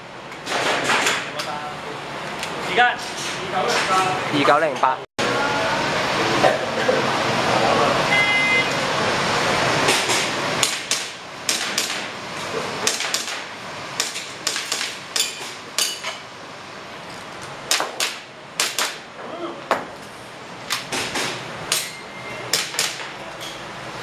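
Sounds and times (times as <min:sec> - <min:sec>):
airsoft pistol shots: 0:17.7 - 0:19.0.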